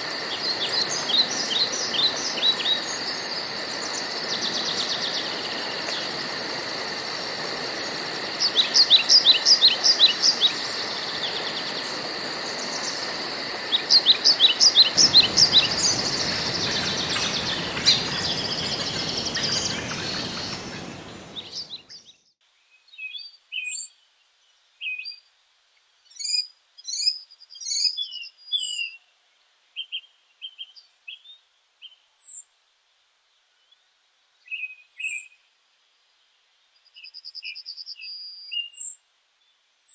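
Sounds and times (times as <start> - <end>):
birds singing: 0.0 - 3.2, 3.8 - 6.3, 7.8 - 22.4
high insect-like buzz: 0.0 - 21.5
steady hiss: 0.0 - 21.8
bird chirps and calls: 13.8 - 22.1.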